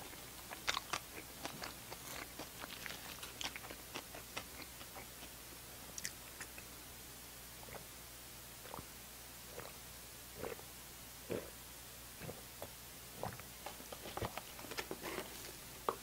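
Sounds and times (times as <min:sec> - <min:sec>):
person chewing bread: 0:00.0 - 0:06.7, 0:13.2 - 0:16.0.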